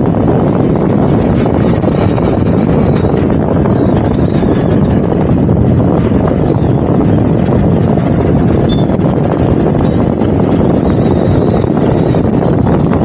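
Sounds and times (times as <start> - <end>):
motorcycle running: 0.0 - 13.0
wind rush over microphone: 0.0 - 13.0.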